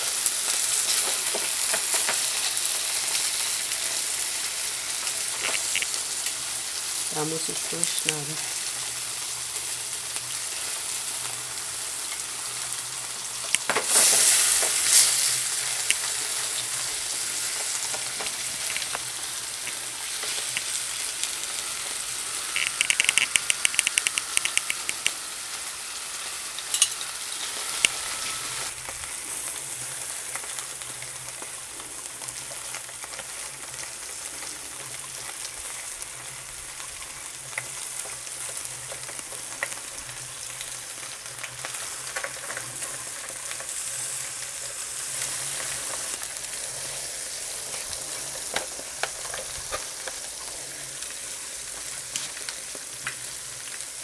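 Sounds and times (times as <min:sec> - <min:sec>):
meat sizzling on a grill: 0:00.0 - 0:54.0
rapid clicks: 0:22.6 - 0:25.2.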